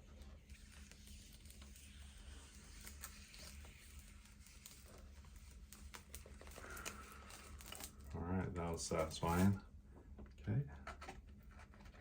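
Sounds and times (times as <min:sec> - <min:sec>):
plastic film being peeled: 0:00.0 - 0:08.1, 0:08.9 - 0:09.6
low steady hum: 0:00.0 - 0:12.0.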